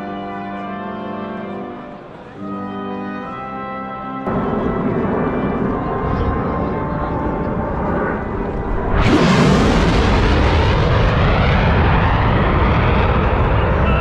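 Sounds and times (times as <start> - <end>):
brass band music: 0.0 - 9.2
jet aircraft flyover: 4.3 - 14.0.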